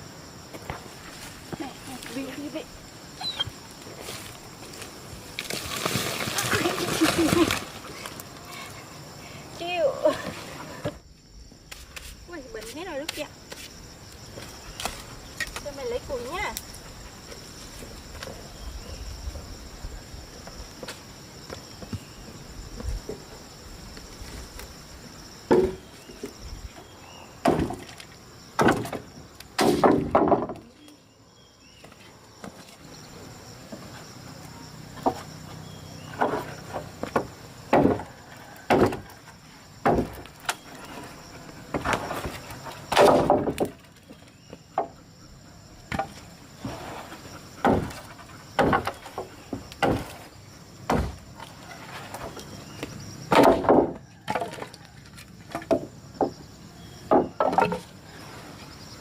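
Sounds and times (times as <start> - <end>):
dry wood cracking: 4.6 - 8.5.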